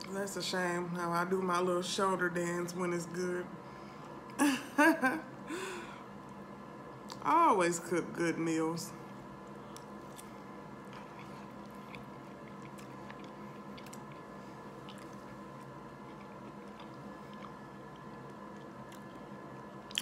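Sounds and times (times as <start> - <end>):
steady background hum: 0.0 - 20.0
person chewing food: 9.4 - 20.0.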